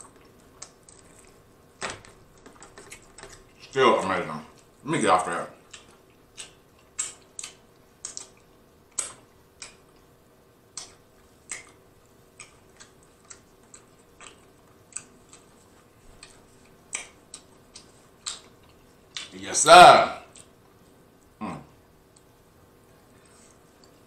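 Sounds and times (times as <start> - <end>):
wet chewing mouth clicks: 5.6 - 10.1, 10.7 - 19.3.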